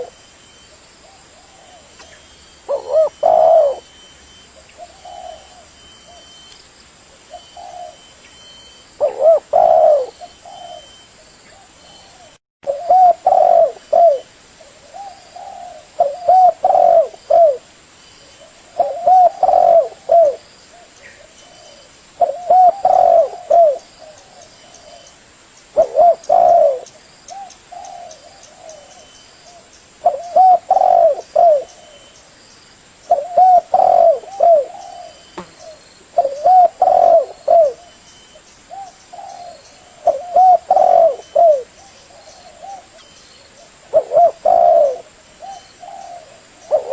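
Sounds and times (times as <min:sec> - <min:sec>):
dove cooing: 0:00.0 - 0:00.2, 0:01.0 - 0:04.0, 0:04.8 - 0:06.4, 0:07.2 - 0:08.1, 0:09.0 - 0:17.7, 0:18.4 - 0:25.1, 0:25.8 - 0:32.2, 0:33.1 - 0:46.9.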